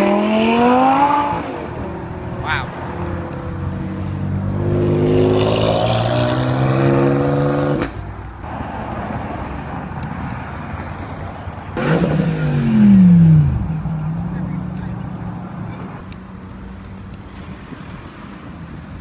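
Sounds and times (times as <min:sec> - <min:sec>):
road traffic: 0:00.0 - 0:19.0
car engine accelerating: 0:11.8 - 0:16.0.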